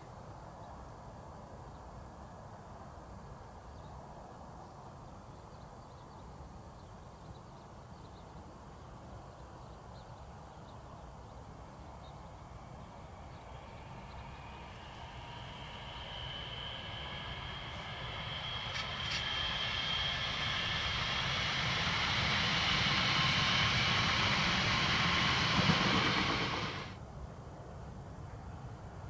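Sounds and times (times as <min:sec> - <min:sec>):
distant electric train approaching: 0:10.8 - 0:27.0
low rumble and hiss: 0:11.2 - 0:29.0.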